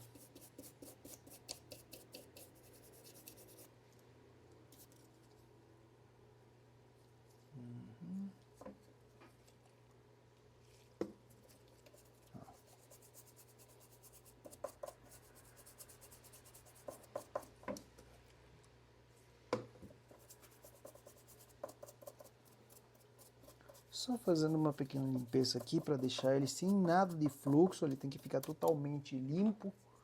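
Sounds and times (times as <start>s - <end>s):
tool tapping and scraping: 23.5s - 28.8s.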